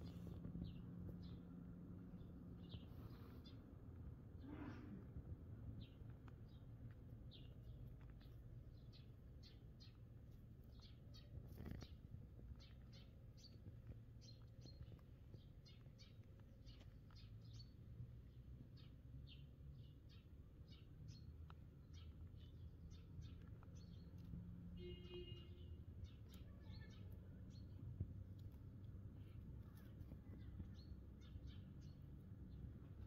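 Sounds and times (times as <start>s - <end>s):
bird chirping: 7.3s - 27.8s, 29.2s - 33.0s.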